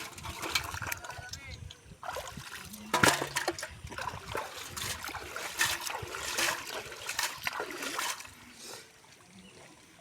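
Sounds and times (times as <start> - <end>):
shallow water splashing: 2.0 - 10.0.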